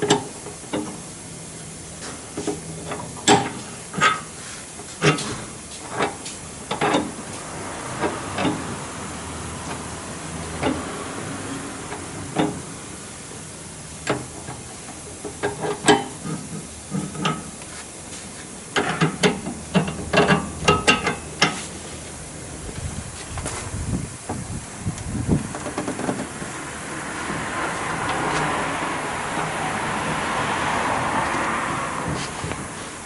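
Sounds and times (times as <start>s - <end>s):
steady hiss: 0.0s - 30.3s
hand tools clanking on metal: 2.4s - 4.3s, 15.2s - 17.6s, 18.8s - 21.7s.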